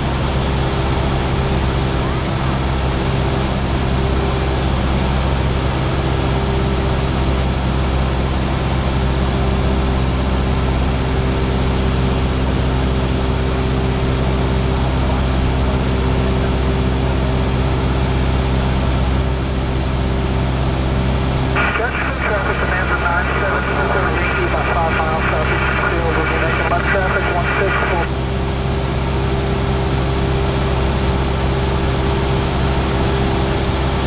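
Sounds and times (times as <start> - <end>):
light aircraft engine droning: 0.0 - 34.0.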